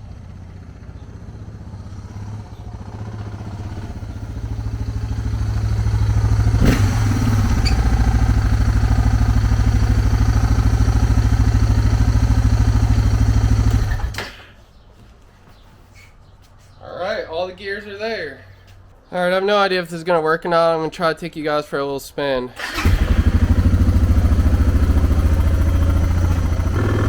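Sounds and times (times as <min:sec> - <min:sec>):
motorcycle engine running: 0:00.0 - 0:14.2, 0:22.6 - 0:27.0.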